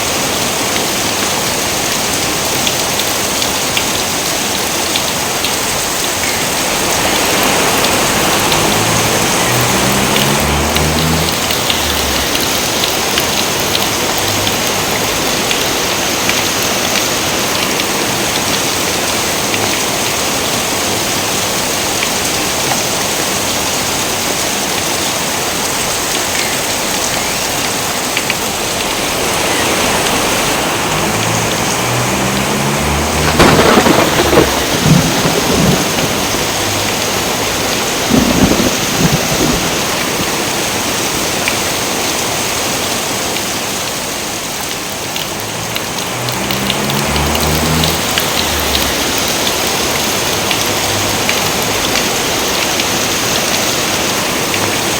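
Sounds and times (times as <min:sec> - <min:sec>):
heavy rain: 0:00.0 - 0:54.9
thunder rumbling: 0:06.7 - 0:15.0, 0:29.5 - 0:40.8, 0:45.3 - 0:51.9.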